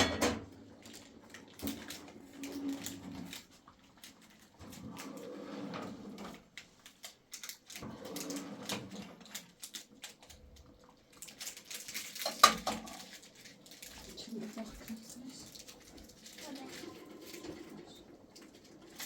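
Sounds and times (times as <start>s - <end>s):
dishes and utensils clinking: 0.0s - 0.5s.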